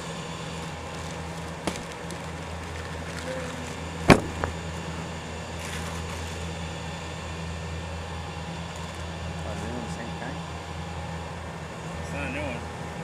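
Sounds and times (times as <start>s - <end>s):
low mechanical hum: 0.0s - 13.0s
sharp knock: 4.1s - 4.6s.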